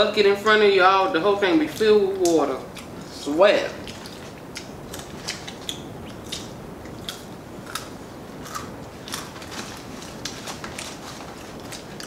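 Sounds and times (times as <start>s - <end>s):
crunching fried chicken: 3.8s - 12.0s
wet mouth clicks: 3.9s - 7.9s.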